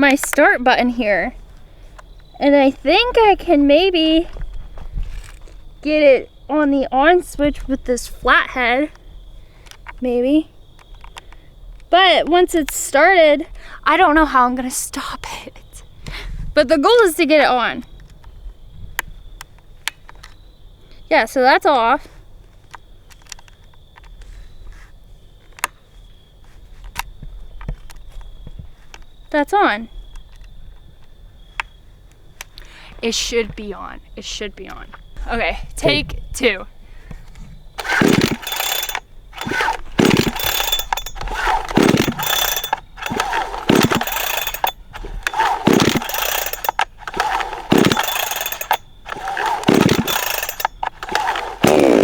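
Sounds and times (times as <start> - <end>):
chainsaw recoil starter cord pulls: 0.0 - 0.5, 37.8 - 52.0
screwdriver clicking on switch: 37.8 - 52.0.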